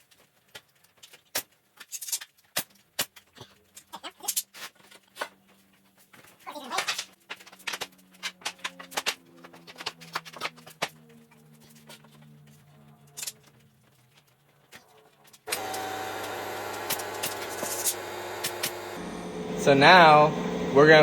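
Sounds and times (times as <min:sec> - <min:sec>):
wooden boards and tools knocking: 0:06.8 - 0:12.3, 0:14.7 - 0:19.0
loud steady machine hum: 0:15.5 - 0:21.0.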